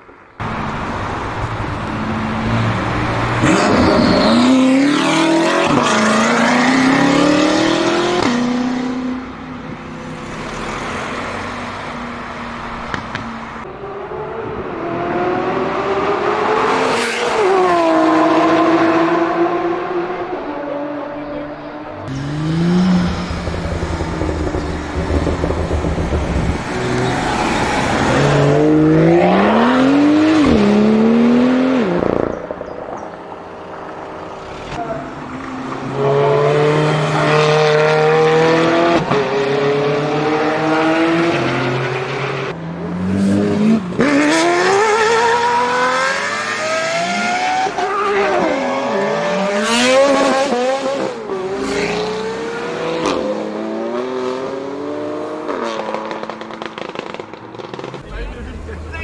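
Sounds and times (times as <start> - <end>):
car engines revving: 0.0 - 59.0
tyre squeal: 3.4 - 4.9.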